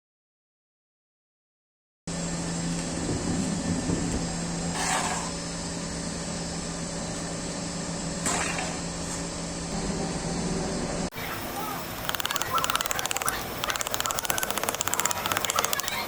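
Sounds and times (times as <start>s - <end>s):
machine humming: 8.8s - 16.0s.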